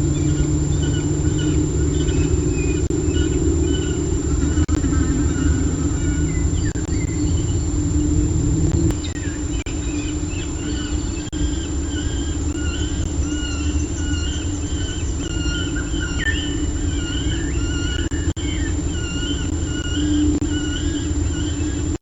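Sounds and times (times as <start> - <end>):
steady low rumble: 0.0 - 11.3
bird chirping: 0.0 - 21.8.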